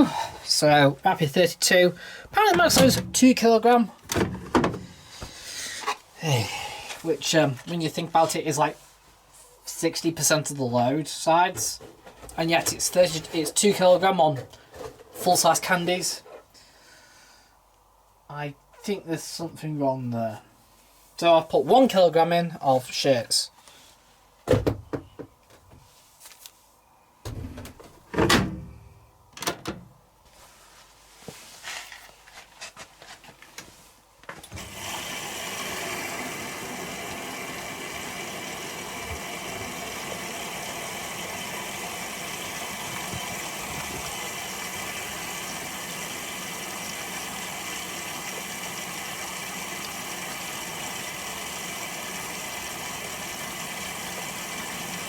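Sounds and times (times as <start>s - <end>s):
washing machine clicks and knocks: 2.5s - 3.2s
water rushing into machine: 34.6s - 55.0s.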